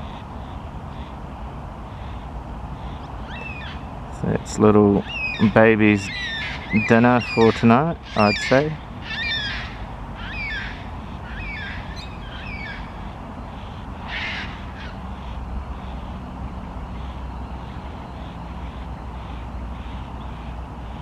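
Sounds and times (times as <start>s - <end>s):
cockatoos calling: 0.0s - 21.0s.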